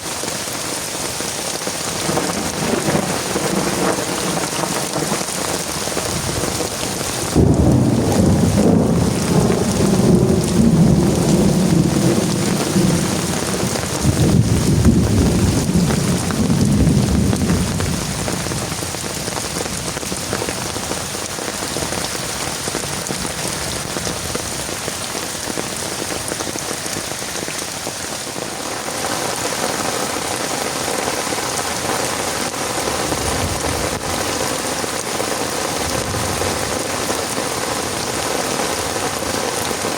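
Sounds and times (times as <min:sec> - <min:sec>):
heavy rain falling: 0:00.0 - 0:39.9
rolling thunder: 0:02.0 - 0:20.9, 0:35.8 - 0:36.9.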